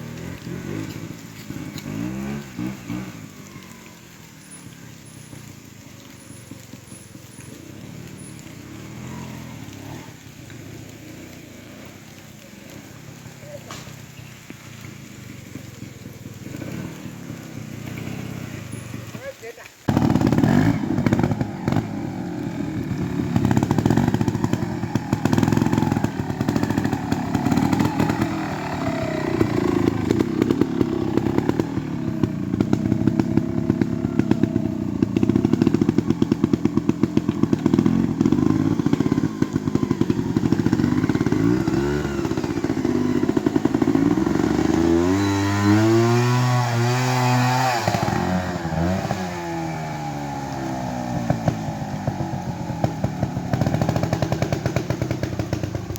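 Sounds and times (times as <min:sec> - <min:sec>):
motorcycle engine throttle blips: 0:00.0 - 0:19.2, 0:19.9 - 0:55.9.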